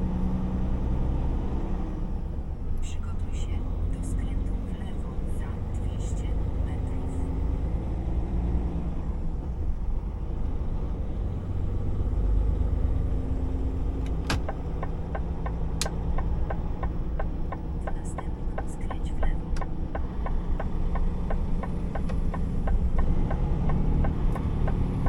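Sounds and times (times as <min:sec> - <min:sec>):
truck diesel engine rumble: 0:00.0 - 0:25.0
turn signal ticking: 0:11.6 - 0:25.0.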